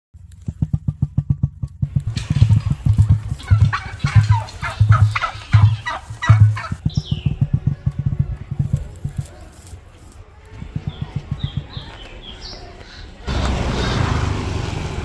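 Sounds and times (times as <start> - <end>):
high crackling noise: 0.4 - 12.2
emu drumming: 0.5 - 9.7, 10.5 - 12.7.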